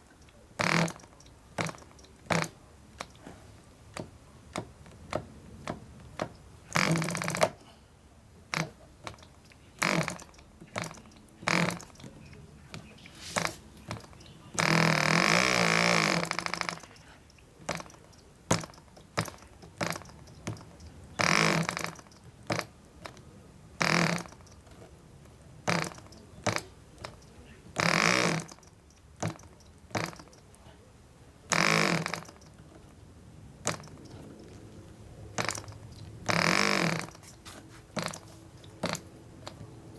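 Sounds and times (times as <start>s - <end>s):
propeller flick clicks: 8.5s - 30.6s.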